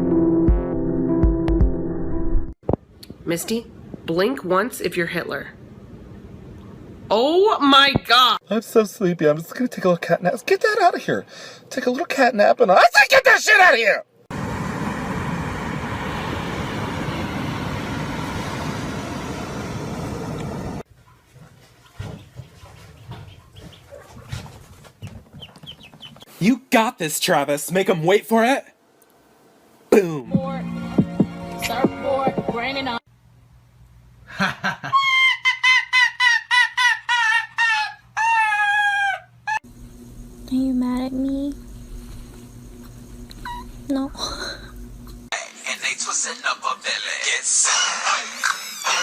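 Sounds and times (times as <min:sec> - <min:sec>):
vehicle rumble and hiss: 0:14.3 - 0:20.9
chicken clucking: 0:22.4 - 0:26.3.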